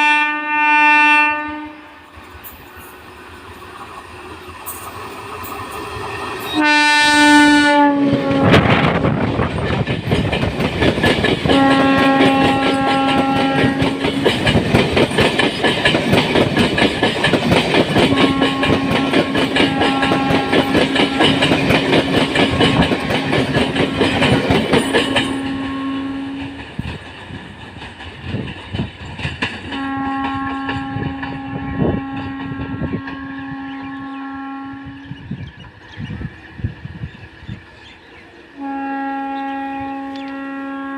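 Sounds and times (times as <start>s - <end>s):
train horn: 0.0s - 2.2s, 6.4s - 9.2s, 11.4s - 14.5s, 18.0s - 26.8s, 29.7s - 35.5s, 38.5s - 40.9s
train wheels clattering over rail joints: 8.2s - 33.4s.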